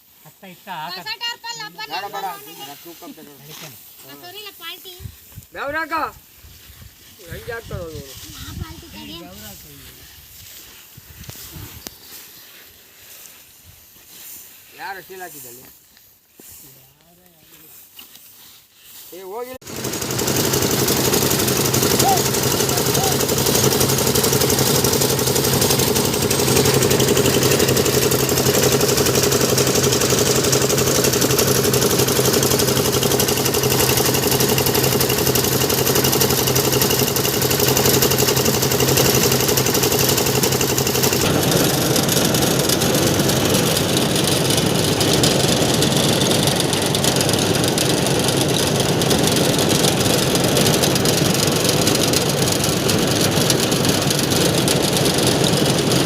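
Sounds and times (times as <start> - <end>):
thresher engine running: 19.6 - 56.0.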